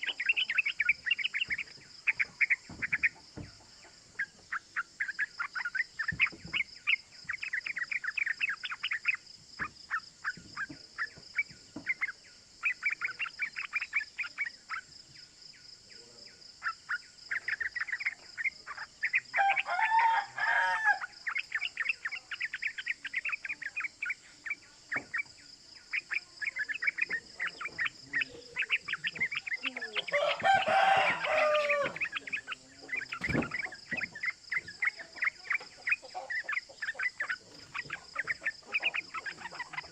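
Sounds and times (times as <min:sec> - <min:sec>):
bulbul chattering calls: 0:00.0 - 0:39.9
rooster crowing: 0:19.3 - 0:21.2, 0:29.7 - 0:32.2.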